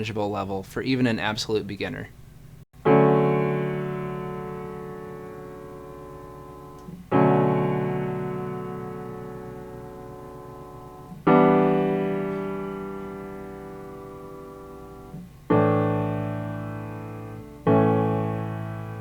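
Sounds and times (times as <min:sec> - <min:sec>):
piano chords: 0:02.8 - 0:19.0.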